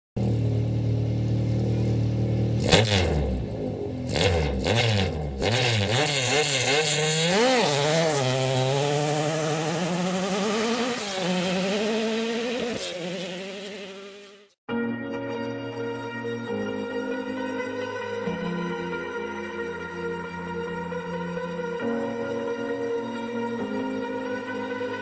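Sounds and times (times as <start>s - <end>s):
car engine revving: 0.2s - 14.6s.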